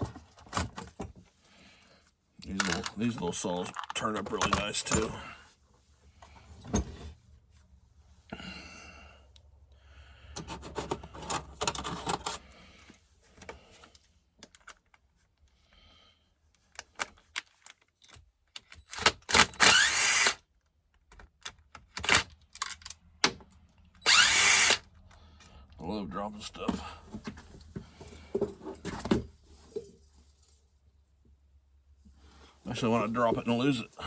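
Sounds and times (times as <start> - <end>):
hand tools and metal parts clinking: 2.4 - 5.4, 10.4 - 12.6
power driver whirring: 19.3 - 20.4, 24.0 - 24.9.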